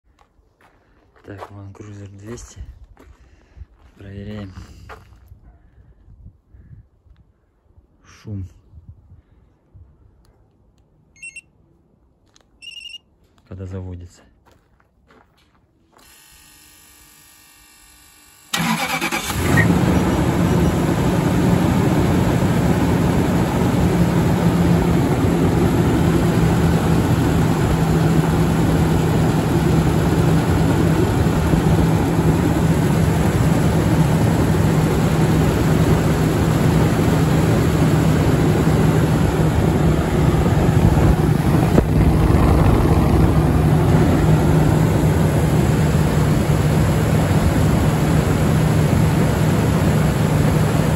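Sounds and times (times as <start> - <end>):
car engine cranking and idling: 18.5 - 50.9.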